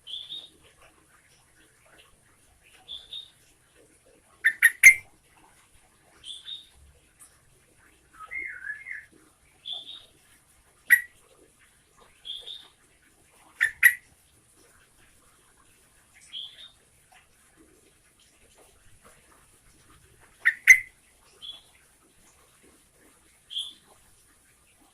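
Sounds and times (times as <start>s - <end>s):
bird singing whistled phrases: 4.5s - 5.0s, 8.2s - 9.1s, 20.4s - 20.9s.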